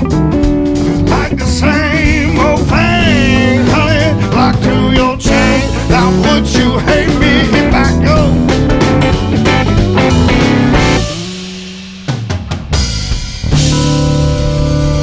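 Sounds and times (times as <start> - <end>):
live rock band playing blues: 0.0 - 15.0
person singing: 0.9 - 8.8.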